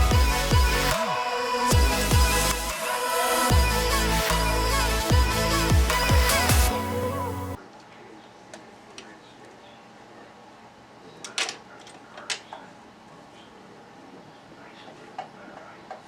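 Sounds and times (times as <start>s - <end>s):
electronic music: 0.0s - 7.6s.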